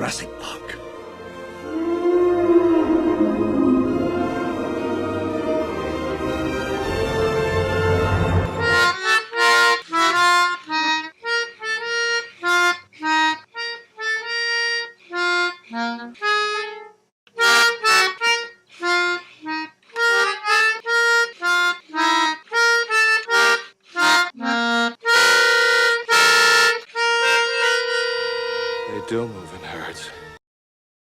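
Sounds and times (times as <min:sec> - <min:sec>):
orchestral music: 0:00.0 - 0:09.1, 0:27.4 - 0:30.4
harmonica melody: 0:00.0 - 0:30.4.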